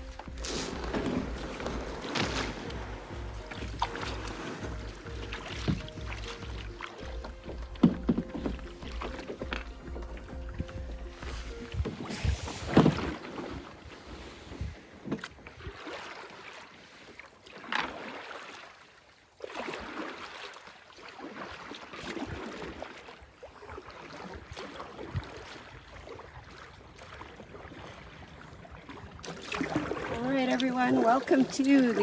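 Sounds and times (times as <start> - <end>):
water dripping and gurgling: 0.0 - 13.8, 22.0 - 32.0
paddle strokes swishing water: 0.0 - 32.0.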